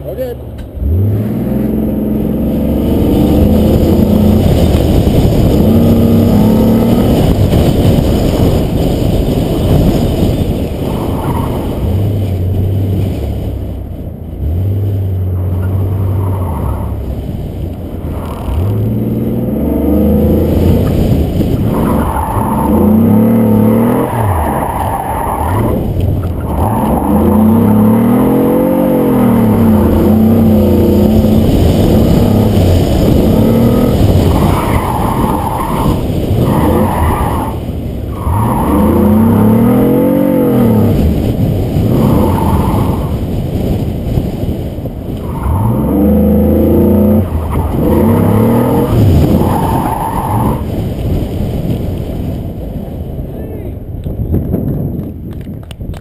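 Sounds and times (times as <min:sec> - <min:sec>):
car engine revving: 0:00.0 - 0:52.1
tire squeal: 0:10.4 - 0:12.0, 0:15.4 - 0:17.1, 0:21.6 - 0:30.7, 0:33.4 - 0:40.9, 0:41.9 - 0:43.2, 0:45.1 - 0:50.7.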